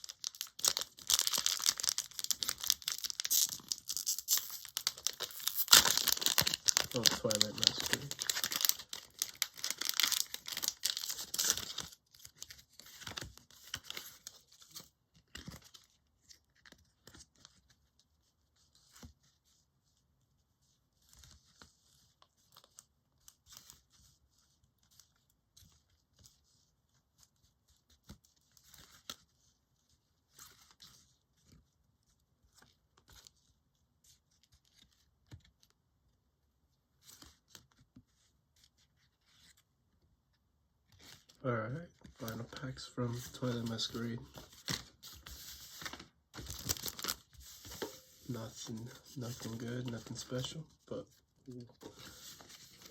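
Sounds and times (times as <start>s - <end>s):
foil wrapper crinkling and tearing: 0.0s - 14.7s, 43.3s - 50.6s
cards rustling and tapping: 0.1s - 17.6s, 43.2s - 50.6s.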